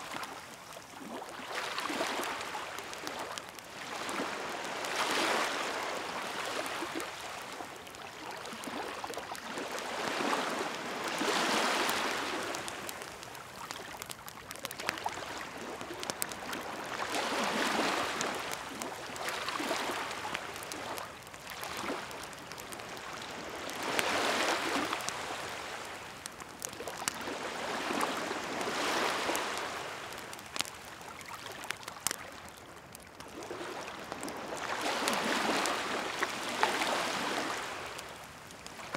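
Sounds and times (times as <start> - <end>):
bonfire crackling and popping: 0.0 - 38.9
sea waves washing ashore: 1.5 - 30.8, 33.3 - 38.9.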